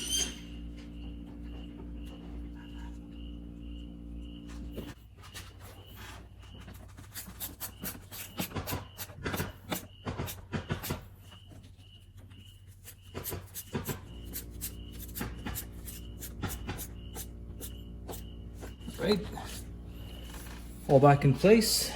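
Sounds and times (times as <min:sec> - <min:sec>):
low steady hum: 0:00.0 - 0:05.2, 0:14.0 - 0:21.9.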